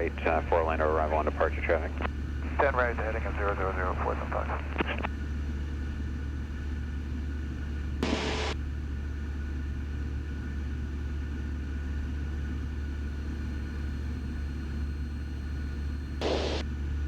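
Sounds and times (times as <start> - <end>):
small plane engine drone: 0.0 - 17.0
radio static burst: 0.2 - 5.1, 8.0 - 8.6, 16.2 - 16.6.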